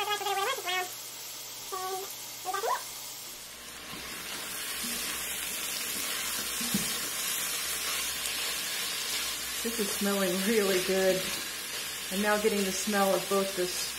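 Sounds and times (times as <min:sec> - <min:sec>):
food sizzling in a pot: 0:00.0 - 0:13.9.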